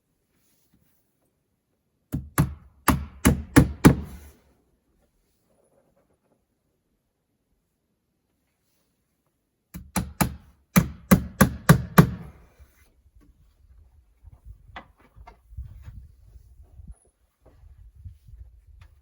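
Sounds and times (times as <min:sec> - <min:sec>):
hammer blows driving nails: 0:02.1 - 0:04.3, 0:09.7 - 0:12.4.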